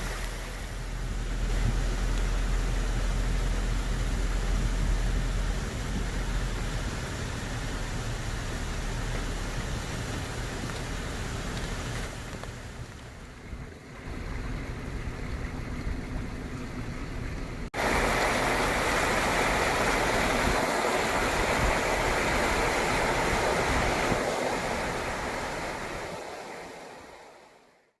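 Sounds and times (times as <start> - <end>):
rushing rainwater hiss: 0.0 - 27.9.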